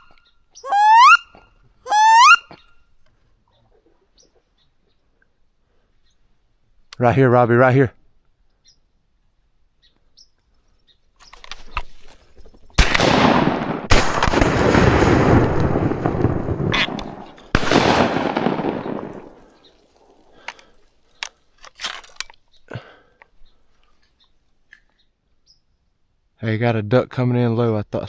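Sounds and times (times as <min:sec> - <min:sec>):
shotgun shots: 0:12.8 - 0:19.5.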